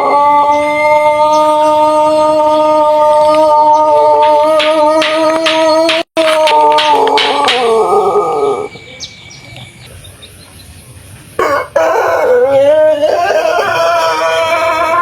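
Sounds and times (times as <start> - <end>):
rooster crowing: 11.4 - 15.0.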